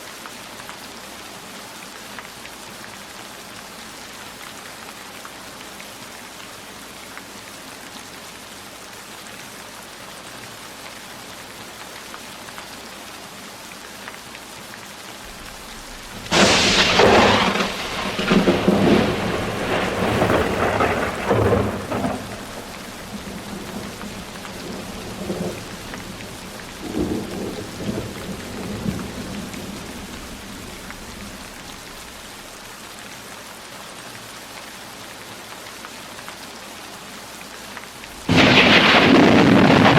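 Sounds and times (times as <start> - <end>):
steady rainfall hiss: 0.0 - 39.9
thunderclap rumbling: 15.3 - 32.4, 38.2 - 39.9.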